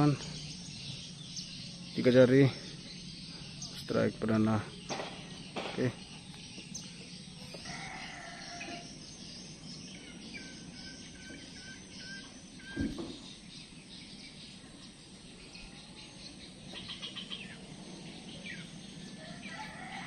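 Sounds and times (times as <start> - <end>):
dull thump: 12.7 - 13.3.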